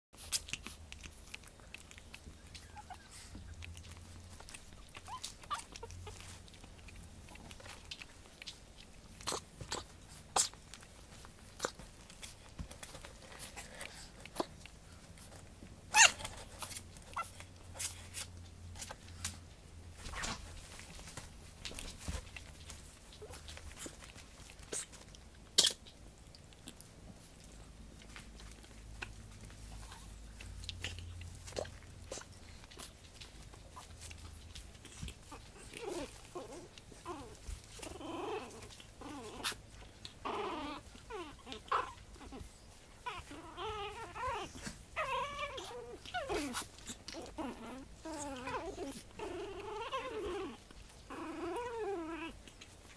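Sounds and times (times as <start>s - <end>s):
puppy whimpering and squeaking: 2.2s - 6.7s, 15.9s - 18.2s, 29.4s - 52.8s.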